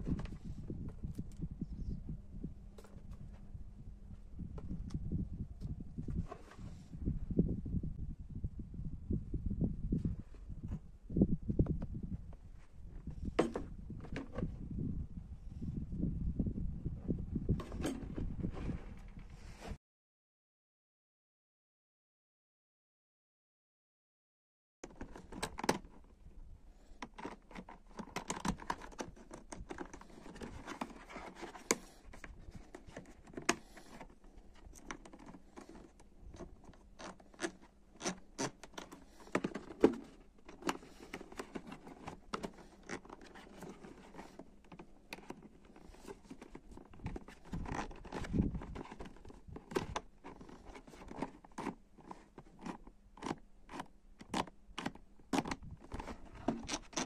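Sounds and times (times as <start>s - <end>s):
hand handling noises: 2.6s - 5.0s, 11.6s - 14.6s, 24.8s - 57.0s.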